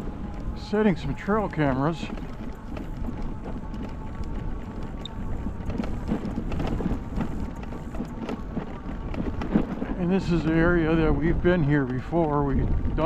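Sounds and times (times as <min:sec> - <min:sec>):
bike rolling on dirt trail: 0:00.0 - 0:13.0
small clicks and rattles: 0:00.0 - 0:13.0
wind rumbling on microphone: 0:00.0 - 0:13.0.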